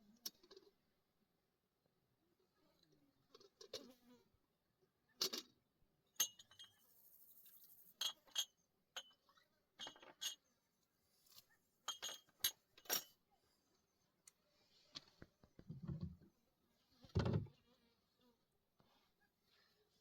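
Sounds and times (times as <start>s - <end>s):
light clinks and clicks: 6.2s - 7.0s, 7.9s - 10.5s, 11.3s - 13.2s.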